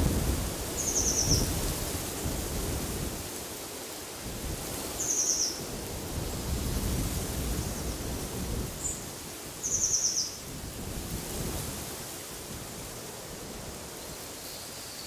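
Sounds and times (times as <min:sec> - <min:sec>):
wind gusting: 0:00.0 - 0:03.2.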